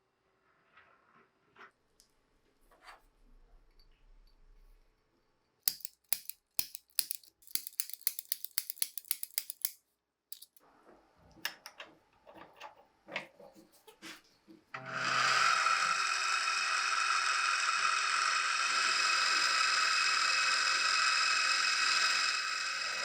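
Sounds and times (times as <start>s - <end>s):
sharp clicks of metal parts: 5.7s - 10.6s.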